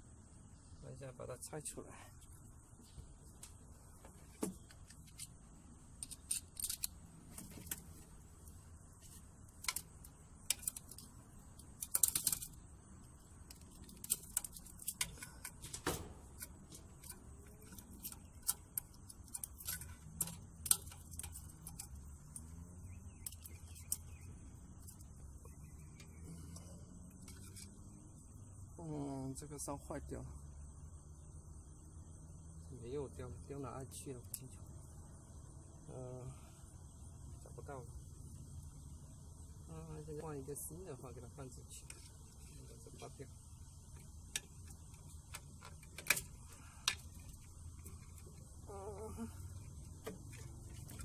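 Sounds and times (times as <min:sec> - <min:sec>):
metal clicks and clinks of tools: 0:06.0 - 0:07.0.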